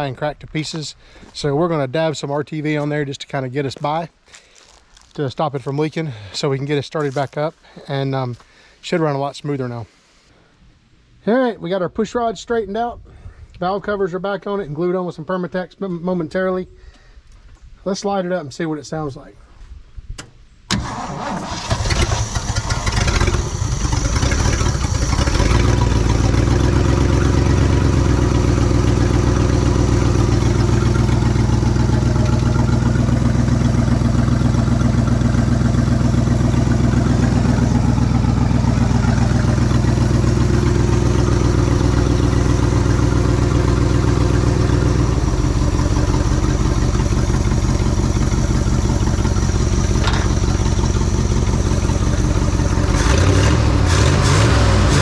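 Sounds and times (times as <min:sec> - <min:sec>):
vee-eight engine starting and idling: 0:20.7 - 0:55.0.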